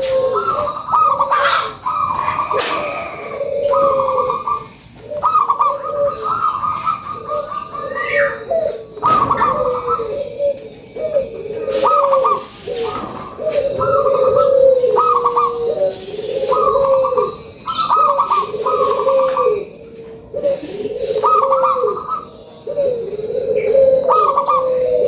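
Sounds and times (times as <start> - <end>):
dove cooing: 0.0 - 25.0
sharp knocks: 9.0 - 9.8.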